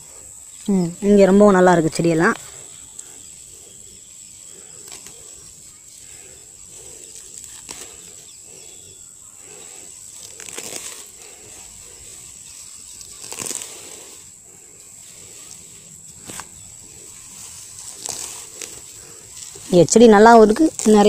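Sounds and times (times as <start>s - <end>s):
leaves rustling: 0.0s - 21.0s
stems snapping: 4.8s - 5.3s, 7.2s - 8.1s, 10.1s - 11.4s, 12.9s - 14.0s, 17.7s - 19.7s, 20.3s - 21.0s.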